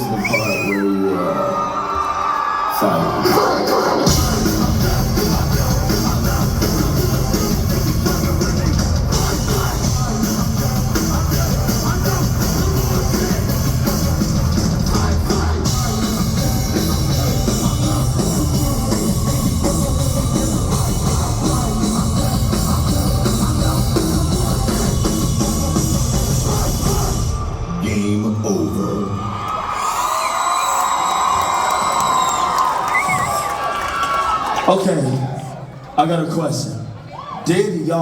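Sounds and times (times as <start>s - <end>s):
loud rock music over pa: 3.1s - 27.8s.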